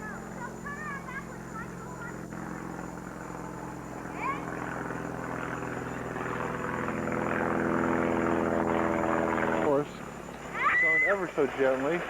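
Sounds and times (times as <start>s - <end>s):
steady low hum: 0.0s - 12.0s
child squealing: 10.5s - 11.3s.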